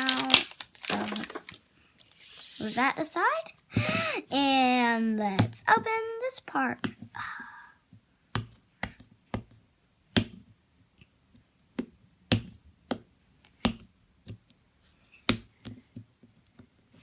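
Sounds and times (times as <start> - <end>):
plastic packaging crackling: 0.0 - 2.9.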